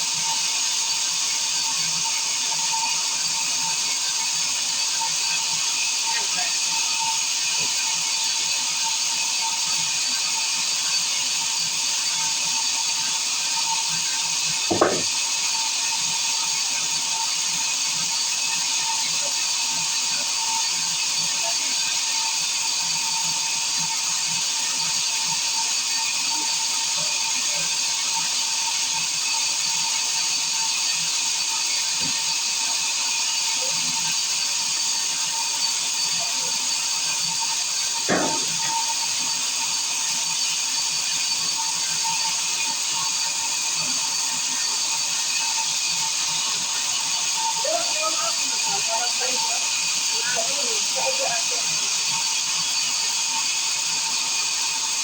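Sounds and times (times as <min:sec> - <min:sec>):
brief thumps: 0:14.7 - 0:15.1, 0:38.1 - 0:38.8
circular saw whining: 0:35.1 - 0:53.0.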